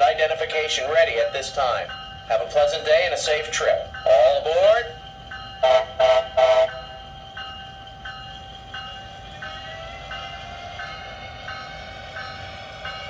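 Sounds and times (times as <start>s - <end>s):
train horn blasts: 5.6s - 6.8s.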